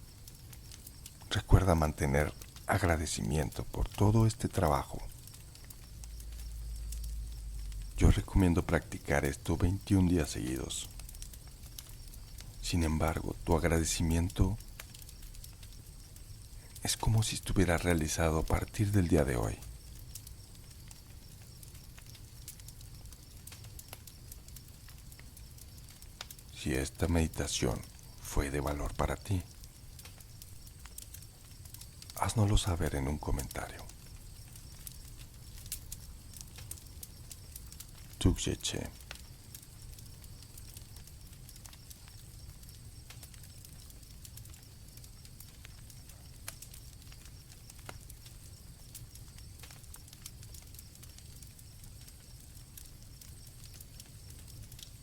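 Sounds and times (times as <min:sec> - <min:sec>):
campfire crackling: 0:00.0 - 0:55.0
crickets trilling: 0:00.0 - 0:55.0
soft low rumble: 0:02.3 - 0:17.2.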